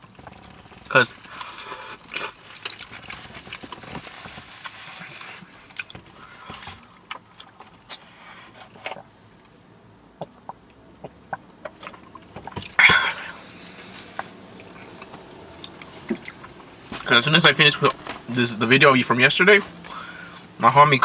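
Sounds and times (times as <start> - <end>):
person chewing food: 0.0 - 9.1, 10.1 - 17.0.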